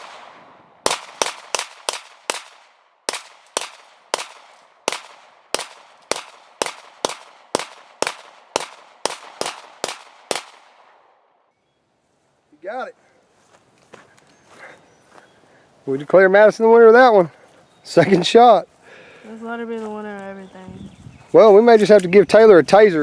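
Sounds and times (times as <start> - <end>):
pistol shots: 0.0 - 11.2.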